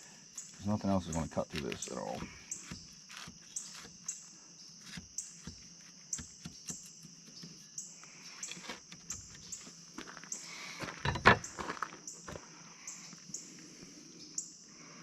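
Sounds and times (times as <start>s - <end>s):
insects buzzing: 0.0s - 15.0s
knife sawing through burger: 2.6s - 4.0s.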